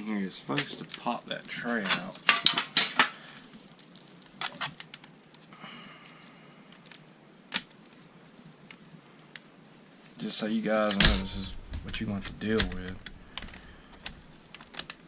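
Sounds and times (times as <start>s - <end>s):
plastic parts clicking: 10.8s - 15.0s.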